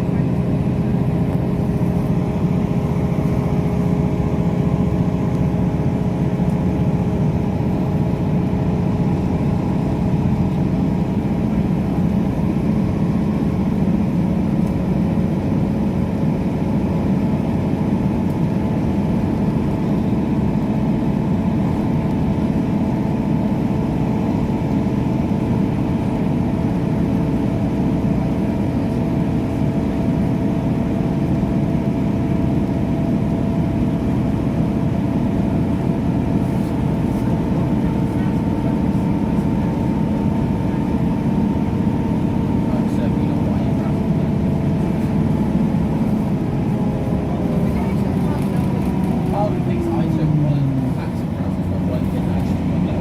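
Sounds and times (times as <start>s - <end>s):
train low rumble: 0.0s - 53.0s
multi-tone hum: 15.4s - 53.0s.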